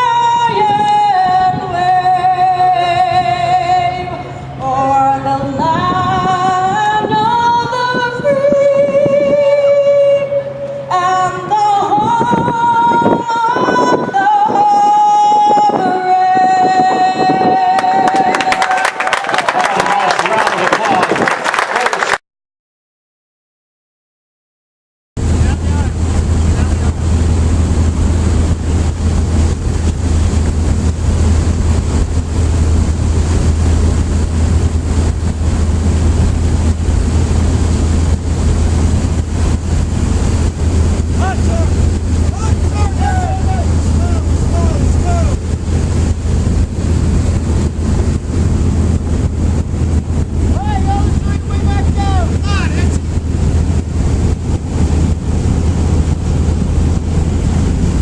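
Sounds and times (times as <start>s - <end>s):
loud low drone: 0.0s - 19.1s, 25.2s - 58.0s
wind buffeting microphone: 0.0s - 21.6s, 25.2s - 58.0s
rushing noise: 25.2s - 58.0s.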